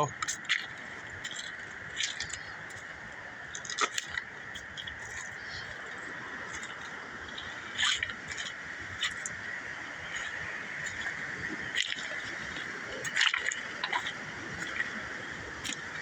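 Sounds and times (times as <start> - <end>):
river stones clicking together: 0.2 - 2.9, 3.5 - 5.3.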